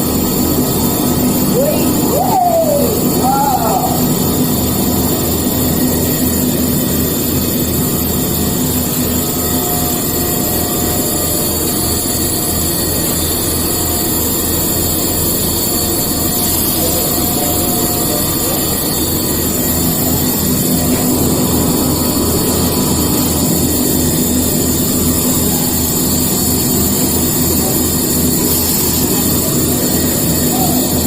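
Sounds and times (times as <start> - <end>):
low machine pulse: 0.0 - 31.0
milling machine hiss and hum: 0.0 - 31.0.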